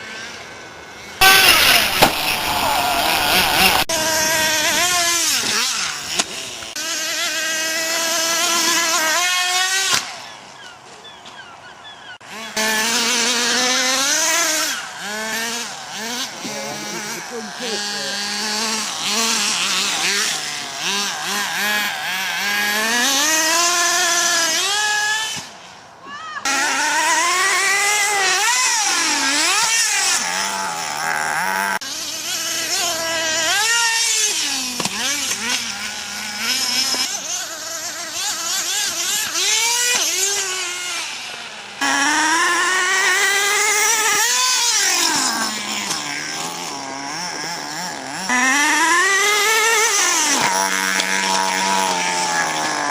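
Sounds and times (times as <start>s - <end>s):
rc car engines whining: 0.0s - 52.9s.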